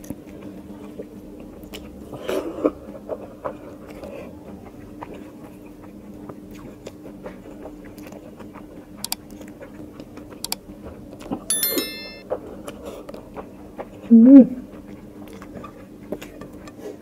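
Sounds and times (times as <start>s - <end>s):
short bright chime: 11.5s - 12.2s.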